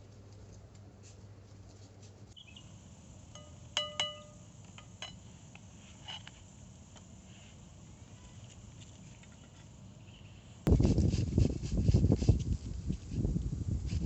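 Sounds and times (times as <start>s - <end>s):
dishes clinking: 3.4s - 5.2s.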